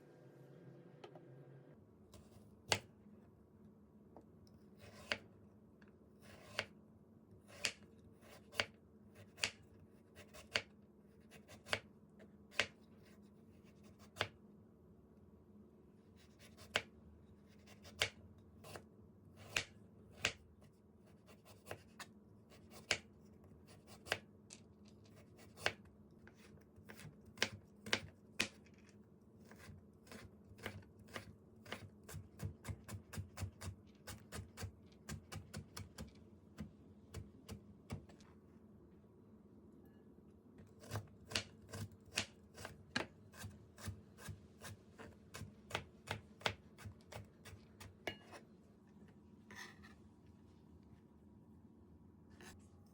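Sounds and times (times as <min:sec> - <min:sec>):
low steady hum: 0:00.0 - 0:13.6, 0:33.1 - 0:45.8
knife chopping on cutting board: 0:04.8 - 0:05.2, 0:06.3 - 0:06.7, 0:29.4 - 0:38.2, 0:40.8 - 0:48.4.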